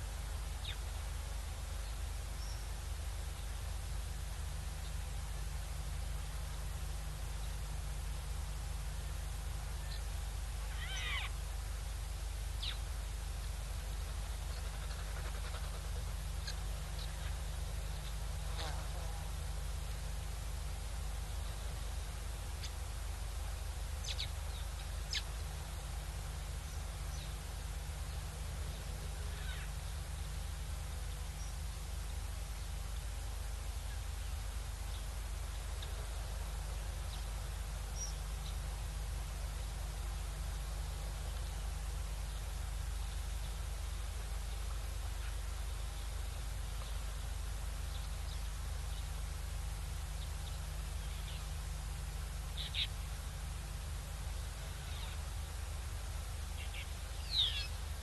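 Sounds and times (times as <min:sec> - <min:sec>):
microphone hum and hiss: 0:00.0 - 0:58.0
small birds chirping: 0:00.2 - 0:03.8, 0:08.5 - 0:11.4, 0:12.4 - 0:58.0
falling mewing bird call: 0:10.6 - 0:11.4, 0:29.2 - 0:29.8.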